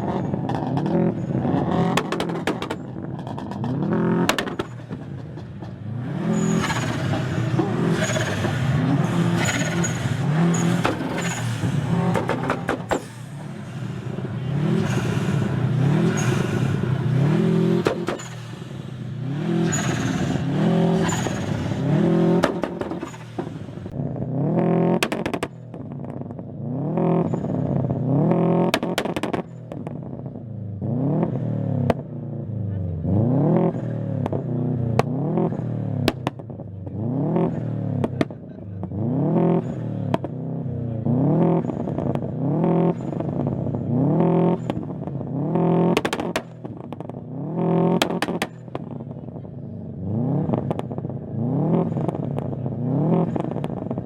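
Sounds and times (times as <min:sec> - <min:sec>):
car engine revving hard: 0:05.8 - 0:25.3, 0:30.8 - 0:31.9, 0:33.0 - 0:40.4, 0:41.0 - 0:54.0.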